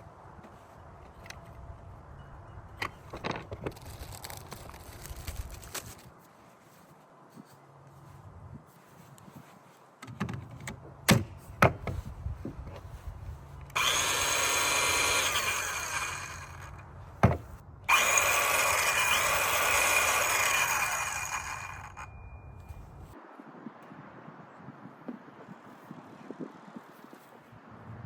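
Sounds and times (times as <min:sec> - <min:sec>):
circular saw cutting wood: 0:13.7 - 0:22.1.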